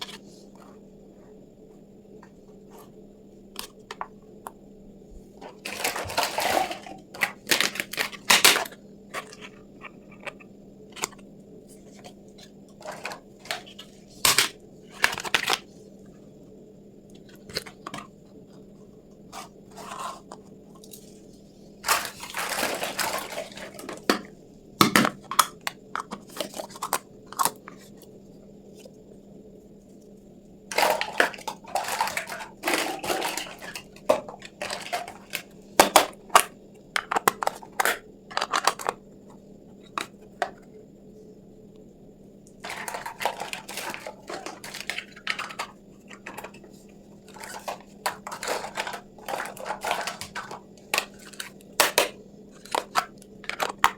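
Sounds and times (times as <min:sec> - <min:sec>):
faint steady hum: 0:00.0 - 0:53.9
packaging rustling: 0:05.4 - 0:11.2, 0:21.8 - 0:24.2, 0:30.7 - 0:36.5, 0:42.6 - 0:53.8.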